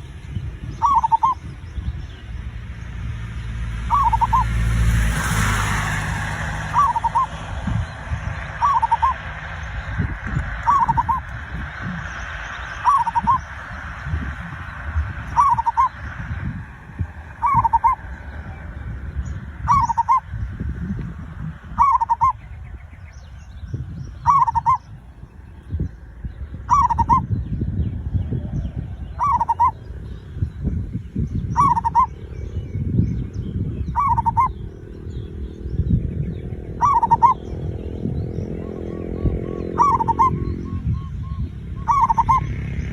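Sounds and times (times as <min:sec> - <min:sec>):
steady low rumble: 0:00.0 - 0:42.9
dove cooing: 0:00.6 - 0:01.6, 0:03.8 - 0:22.4, 0:24.1 - 0:24.9, 0:26.6 - 0:27.4, 0:28.0 - 0:30.2, 0:31.5 - 0:32.9, 0:33.8 - 0:35.6, 0:36.5 - 0:42.9.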